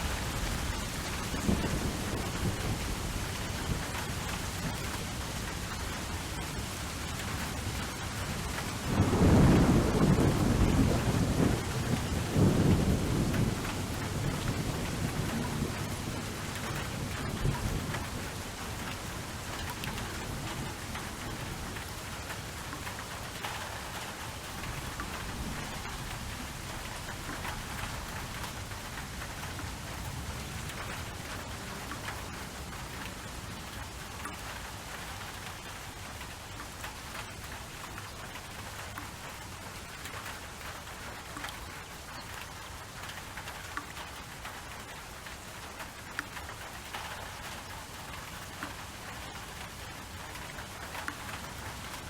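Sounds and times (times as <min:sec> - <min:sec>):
thunder rumbling: 0:00.0 - 0:05.2, 0:08.7 - 0:18.8
steady rainfall: 0:00.0 - 0:52.0.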